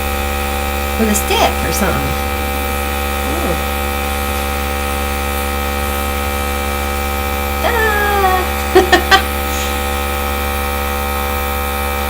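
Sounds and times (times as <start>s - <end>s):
electric motor humming: 0.0s - 12.0s
person saying ooh: 3.2s - 3.7s
short voiced sounds: 3.2s - 3.7s.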